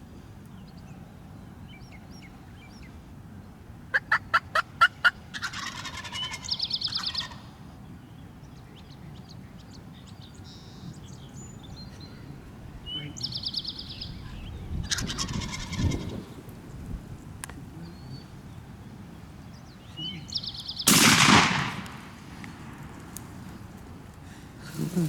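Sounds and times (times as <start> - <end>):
wild turkey gobbling: 3.9 - 7.5, 14.8 - 16.2.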